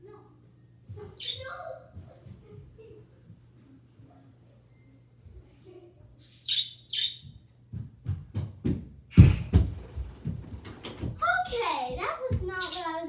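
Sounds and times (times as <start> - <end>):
bird chirps: 6.2 - 7.3
low thumps and knocks: 7.7 - 12.6.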